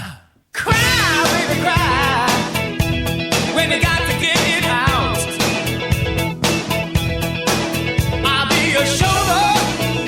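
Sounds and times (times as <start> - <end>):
rock band playing: 0.7 - 10.0.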